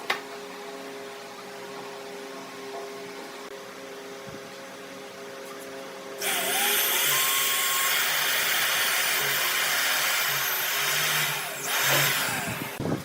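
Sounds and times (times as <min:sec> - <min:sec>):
electric power tool whirring: 0:06.2 - 0:12.8.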